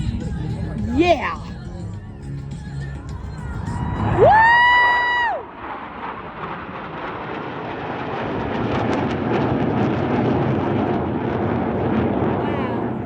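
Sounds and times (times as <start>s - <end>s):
jets flying past: 3.3s - 13.0s.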